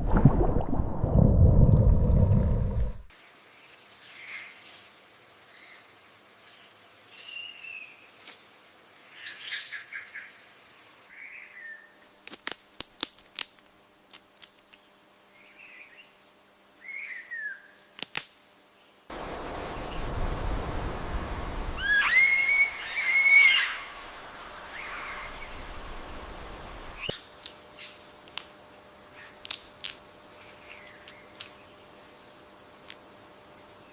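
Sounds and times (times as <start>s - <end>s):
low rushing noise: 0.0s - 3.1s, 19.1s - 22.9s
bird chirps and whistled calls: 21.8s - 23.9s.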